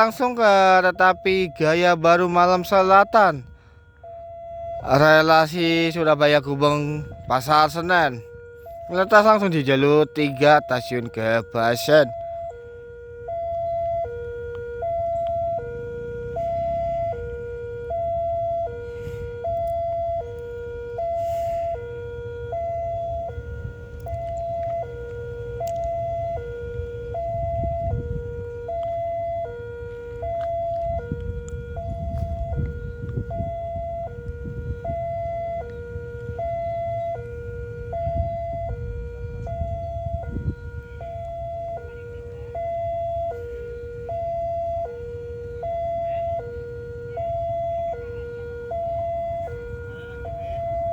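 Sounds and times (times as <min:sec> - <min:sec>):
two-tone railway warning alarm: 0:00.0 - 0:50.9.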